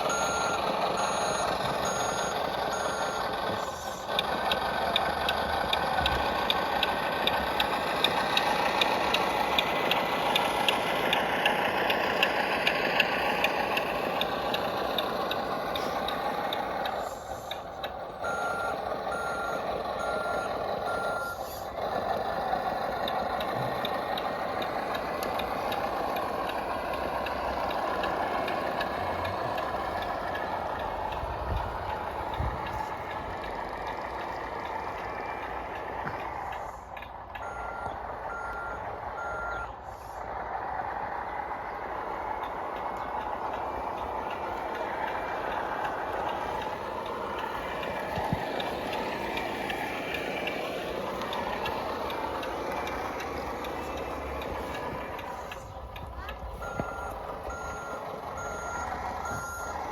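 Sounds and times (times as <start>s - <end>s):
reversing beeper: 0.0s - 4.2s, 18.2s - 21.6s, 37.4s - 39.7s, 56.6s - 59.9s
model truck drive whine: 0.0s - 59.9s.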